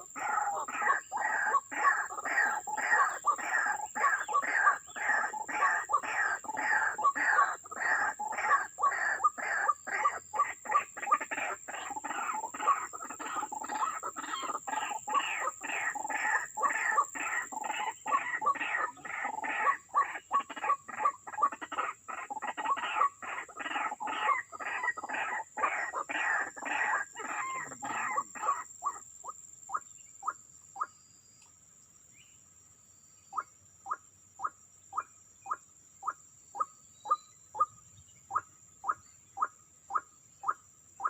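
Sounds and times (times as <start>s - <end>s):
waterhen calling: 0.0s - 29.0s.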